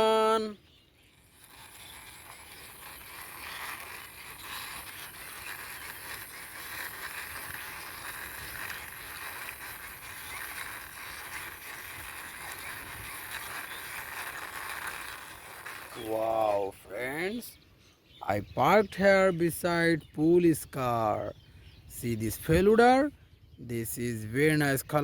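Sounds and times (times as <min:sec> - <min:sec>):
toy truck wheels rolling: 0:00.0 - 0:17.5.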